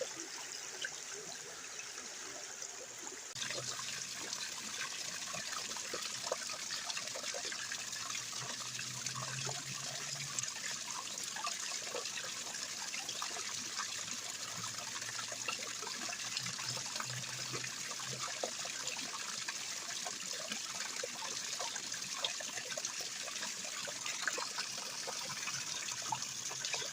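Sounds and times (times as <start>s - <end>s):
water trickling down small waterfalls: 0.0s - 26.9s.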